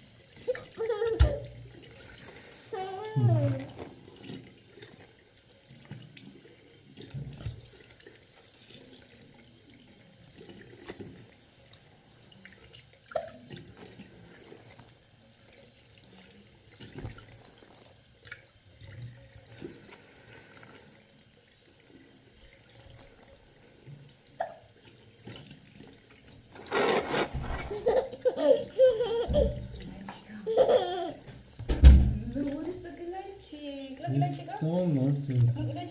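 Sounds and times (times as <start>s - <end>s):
water splashing: 26.4s - 33.4s.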